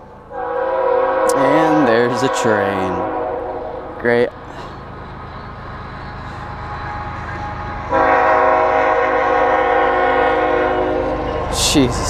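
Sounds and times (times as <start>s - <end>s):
train rumbling past: 0.0s - 12.0s
train horn blast: 0.3s - 4.2s, 6.7s - 12.0s.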